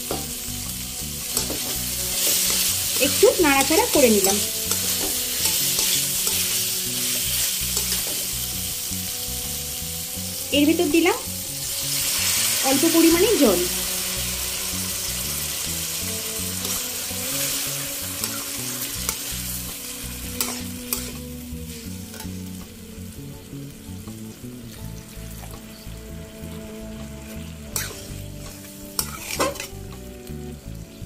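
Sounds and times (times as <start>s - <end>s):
metal spatula scraping a pan: 0.0s - 8.6s, 14.0s - 22.4s, 27.2s - 30.0s
curry sizzling in a pan: 0.0s - 31.0s.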